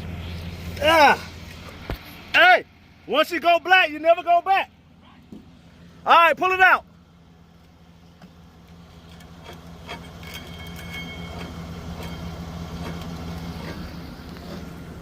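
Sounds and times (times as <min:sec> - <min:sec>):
truck engine humming: 0:00.0 - 0:15.0
winch whine: 0:08.0 - 0:15.0
clicks and clanks: 0:08.2 - 0:14.7.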